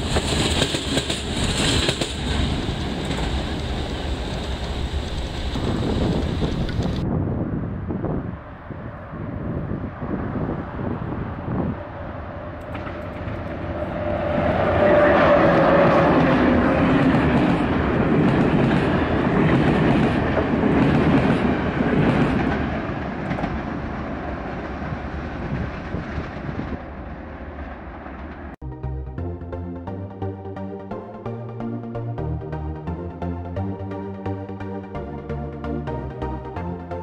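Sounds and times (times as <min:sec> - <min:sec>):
wheels clicking over rail joints: 0:00.0 - 0:07.0, 0:12.6 - 0:14.0
train rumbling past: 0:00.0 - 0:28.6.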